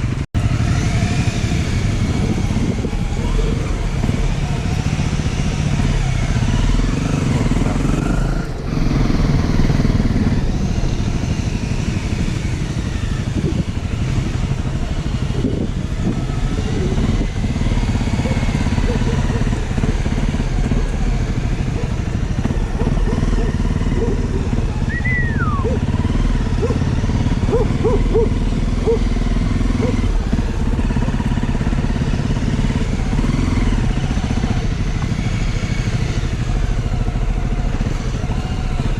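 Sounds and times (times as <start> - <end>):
motorbike engine running: 0.0 - 38.9.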